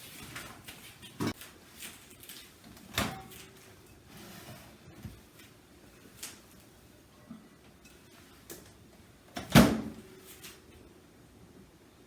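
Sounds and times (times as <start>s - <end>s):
microwave door opening and shutting: 2.8s - 3.5s, 9.3s - 10.1s.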